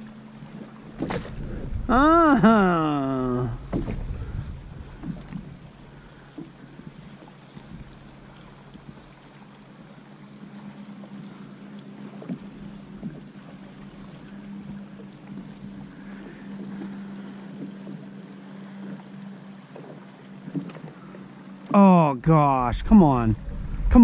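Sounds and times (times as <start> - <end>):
steady low hum: 22.0 - 24.0.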